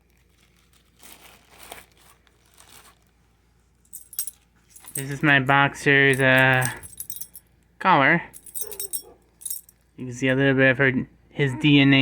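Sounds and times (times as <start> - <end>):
rustling and crinkling: 0.0 - 7.4
dog collar tags jingling: 3.9 - 5.4, 6.1 - 7.5, 8.4 - 9.8.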